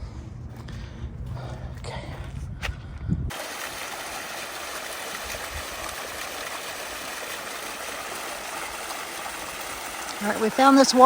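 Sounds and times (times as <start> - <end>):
waterfall rushing: 3.3 - 11.0.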